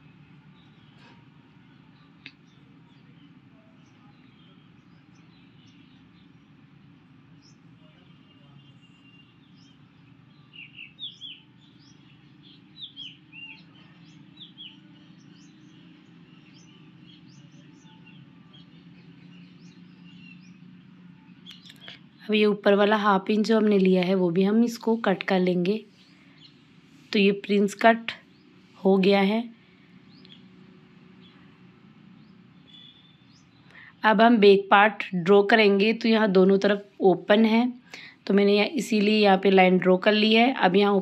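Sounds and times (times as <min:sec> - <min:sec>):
low steady hum: 0:00.0 - 0:41.0
faint small bird chirps: 0:21.4 - 0:22.3, 0:32.6 - 0:34.0.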